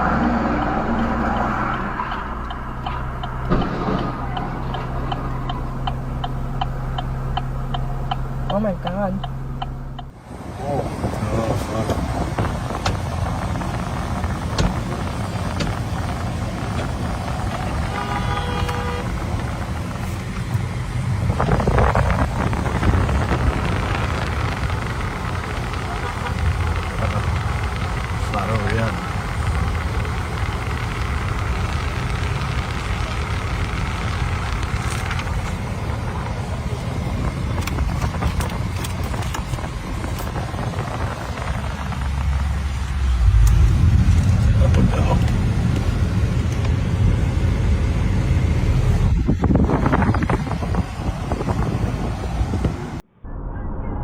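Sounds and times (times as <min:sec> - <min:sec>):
rushing noise: 0:00.0 - 0:06.5, 0:10.1 - 0:54.0
car driving rumble: 0:00.0 - 0:53.1
car horn honking: 0:16.6 - 0:20.2, 0:25.7 - 0:27.4.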